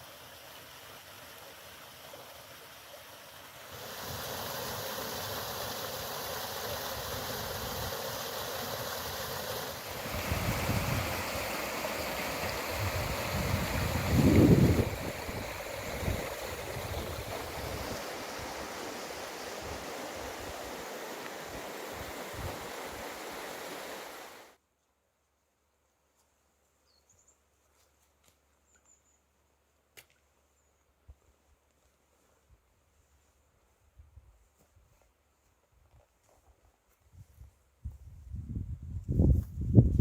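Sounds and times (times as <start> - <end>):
strong wind rushing: 10.0 - 11.4, 12.7 - 18.6
wind buffeting microphone: 10.0 - 18.8.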